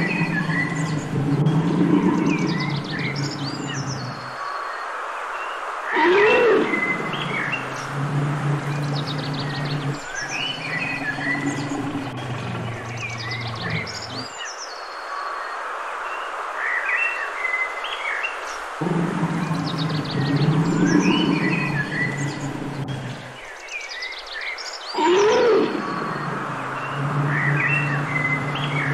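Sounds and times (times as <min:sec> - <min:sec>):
low steady hum: 0:00.0 - 0:04.4, 0:06.0 - 0:14.3, 0:18.8 - 0:23.5, 0:25.0 - 0:28.9
small birds chirping: 0:00.0 - 0:04.8, 0:06.0 - 0:15.1, 0:18.5 - 0:28.9
outdoor background noise: 0:00.0 - 0:28.9.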